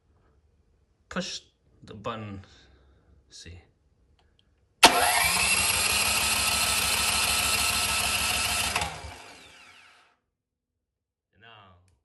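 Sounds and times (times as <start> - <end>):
starter motor cranking engine: 4.8 - 10.1.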